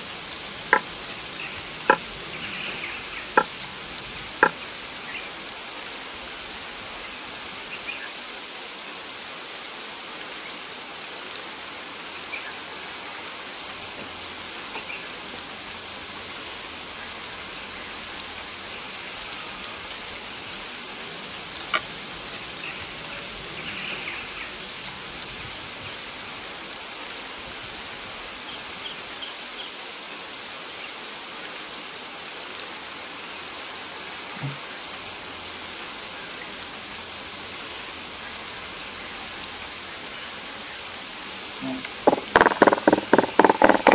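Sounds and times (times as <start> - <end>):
steady rain hiss: 0.0 - 43.9
drops ticking on surfaces: 0.7 - 2.1, 3.4 - 3.7, 4.4 - 4.6, 41.9 - 43.9.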